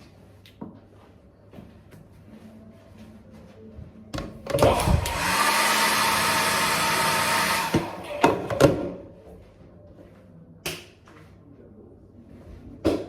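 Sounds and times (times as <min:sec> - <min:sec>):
hair dryer running: 0:04.5 - 0:08.2.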